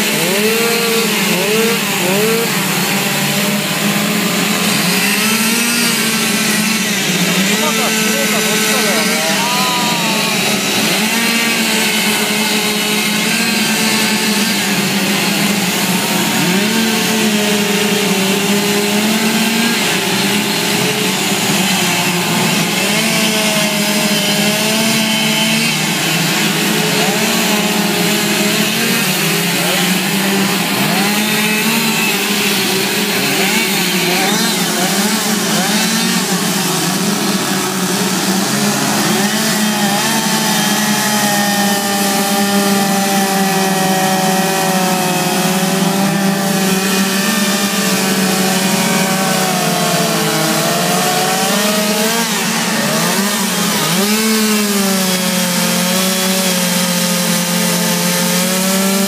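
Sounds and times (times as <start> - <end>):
chainsaws carving wood: 0.0 - 59.0.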